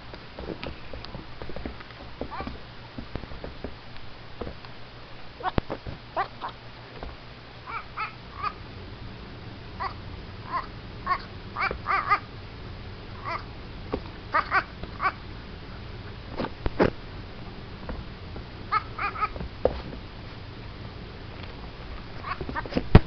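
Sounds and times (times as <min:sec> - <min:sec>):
baby goat calling: 0:07.6 - 0:08.6, 0:09.8 - 0:12.3, 0:14.3 - 0:15.2, 0:18.7 - 0:19.4, 0:22.2 - 0:22.7.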